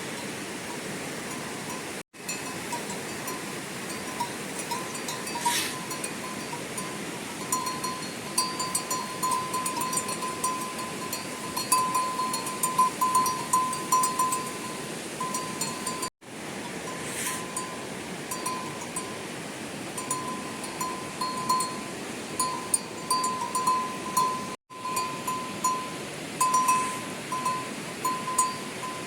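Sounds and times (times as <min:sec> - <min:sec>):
small metal bell clinking: 0:02.3 - 0:14.6.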